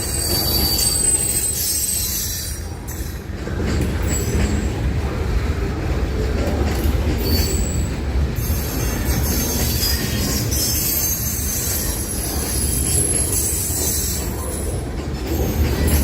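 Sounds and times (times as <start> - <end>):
train wheels squealing: 0.0 - 3.2, 7.2 - 16.0
train rumbling past: 0.0 - 16.0.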